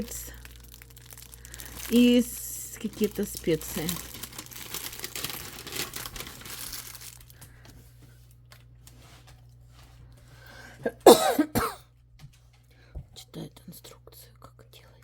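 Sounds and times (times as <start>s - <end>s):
plastic packets crinkling: 0.0s - 7.7s.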